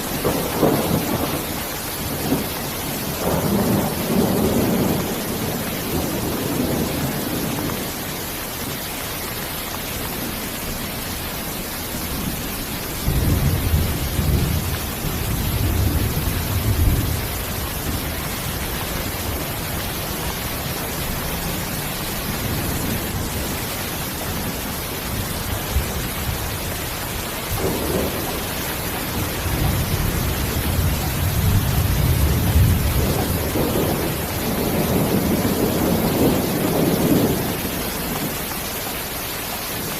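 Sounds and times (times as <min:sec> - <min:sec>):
thunder rumbling: 0:00.0 - 0:39.2
heavy rain: 0:00.0 - 0:39.9.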